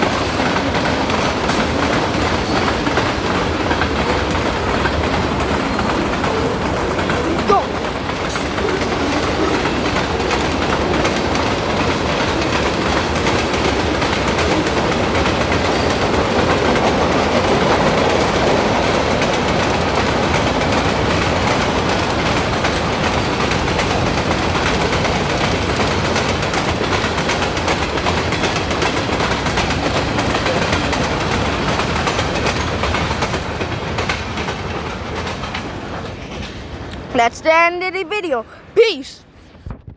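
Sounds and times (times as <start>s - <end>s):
train wheels rattling on rails: 0.0s - 37.1s.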